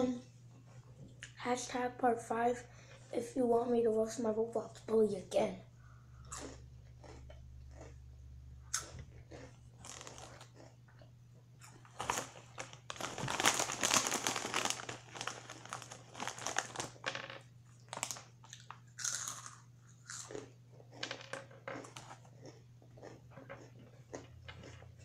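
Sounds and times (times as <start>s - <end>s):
steady low hum: 0.0s - 25.0s
crunching and chewing snacks: 6.2s - 17.1s, 17.8s - 25.0s.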